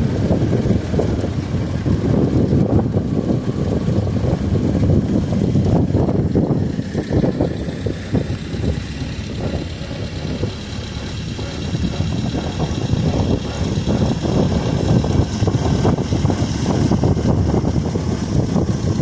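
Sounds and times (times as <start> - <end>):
truck engine rumbling: 0.0 - 19.0.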